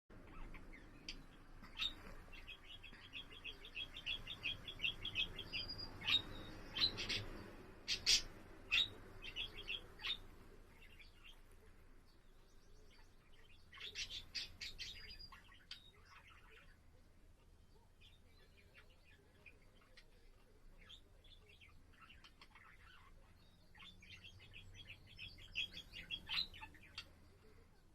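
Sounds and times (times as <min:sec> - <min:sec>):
budgerigar chirping: 0:00.2 - 0:10.2, 0:13.7 - 0:16.7, 0:20.9 - 0:27.1.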